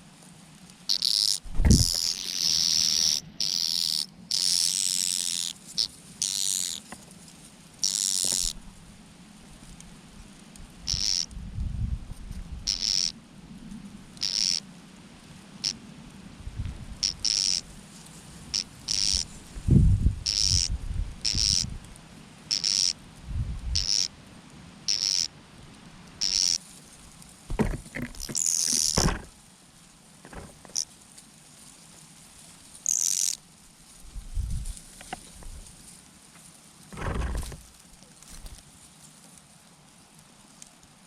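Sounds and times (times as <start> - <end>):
low thumps: 1.5 - 2.0, 27.5 - 29.3, 37.0 - 37.7.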